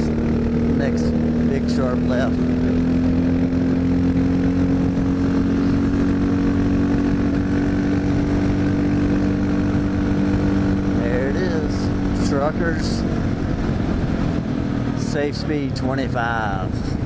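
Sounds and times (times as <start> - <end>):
motorcycle engine running: 0.0 - 17.0
wind rush over microphone: 2.4 - 15.0.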